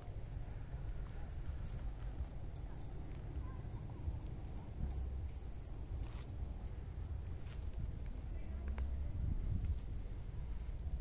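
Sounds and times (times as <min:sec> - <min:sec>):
bird's high whistled call: 0:01.4 - 0:06.4.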